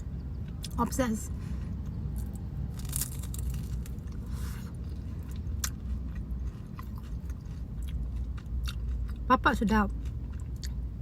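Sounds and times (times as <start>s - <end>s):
person biting and chewing: 1.8s - 9.2s.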